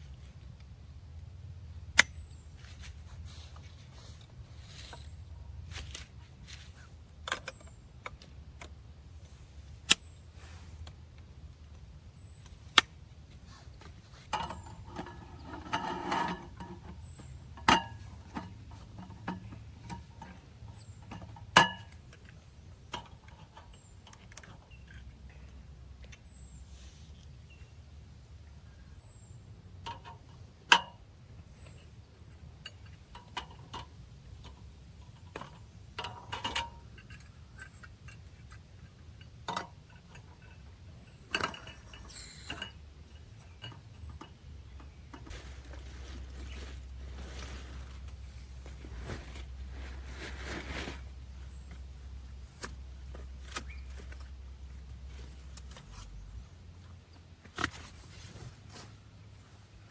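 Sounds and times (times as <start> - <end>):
low steady rumble: 0.0 - 36.0, 36.6 - 59.9.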